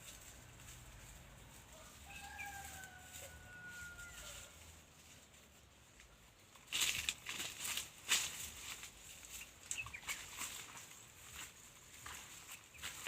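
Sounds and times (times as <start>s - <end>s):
rustling and crackling: 0.0s - 13.0s
distant rooster crowing: 1.7s - 4.7s.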